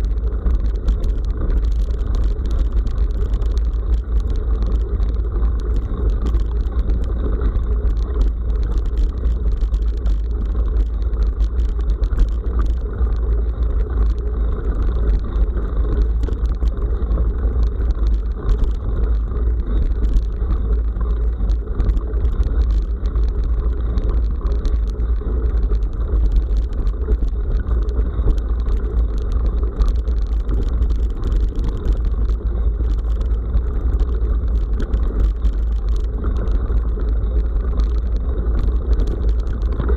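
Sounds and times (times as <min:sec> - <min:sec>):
road rumble: 0:00.0 - 0:39.9
short clicks and rattles: 0:00.0 - 0:39.9.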